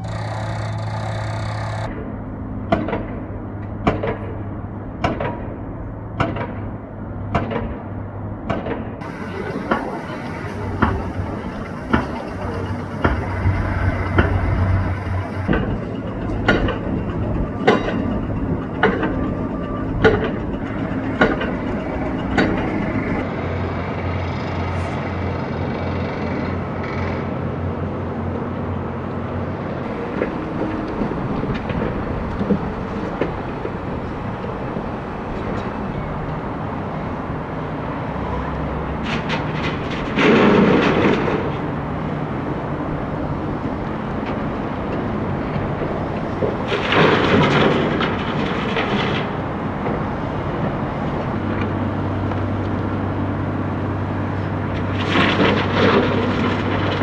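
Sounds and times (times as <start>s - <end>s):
low machinery drone: 0.0s - 57.0s
sharp knocks: 8.5s - 23.2s
loud rushing surge: 9.0s - 23.4s.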